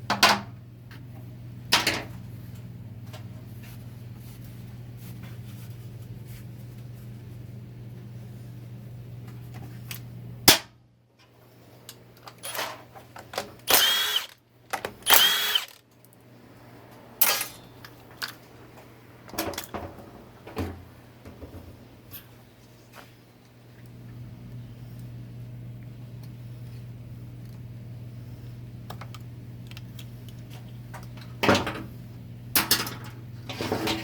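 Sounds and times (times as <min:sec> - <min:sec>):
steady low hum: 0:00.0 - 0:34.0
clicks and knocks of parts handled: 0:09.8 - 0:16.3, 0:17.2 - 0:18.4, 0:28.9 - 0:31.4
power tool running: 0:13.6 - 0:14.4, 0:15.0 - 0:15.8.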